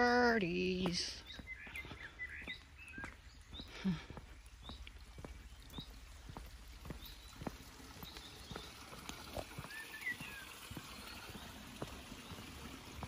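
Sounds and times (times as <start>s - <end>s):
boot footsteps on path: 0.0s - 13.0s
small birds chirping: 0.0s - 13.0s.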